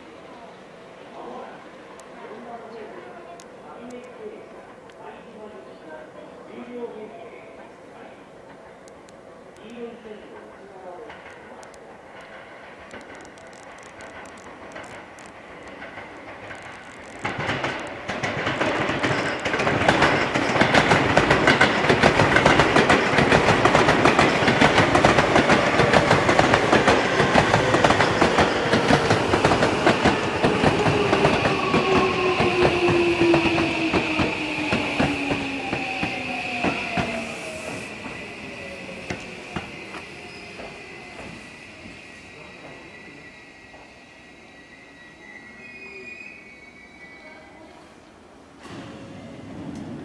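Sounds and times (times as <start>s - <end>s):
train wheels clattering over joints: 11.0s - 37.1s
train braking whine: 24.2s - 50.0s.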